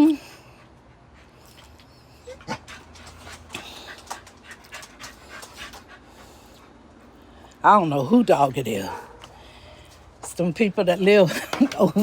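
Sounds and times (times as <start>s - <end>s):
small dog panting: 0.1s - 7.5s.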